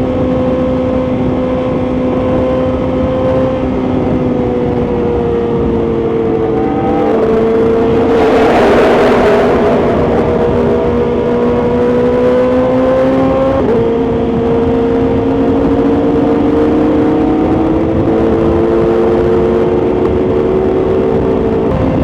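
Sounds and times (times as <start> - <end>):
wind and road rush: 0.0 - 22.0
motorcycle engine exhaust note: 7.4 - 12.2.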